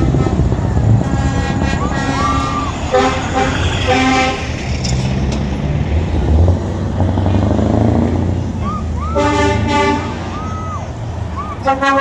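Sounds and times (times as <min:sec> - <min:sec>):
truck horn: 0:00.0 - 0:04.7, 0:08.6 - 0:12.0
truck engines rumbling: 0:00.0 - 0:12.0.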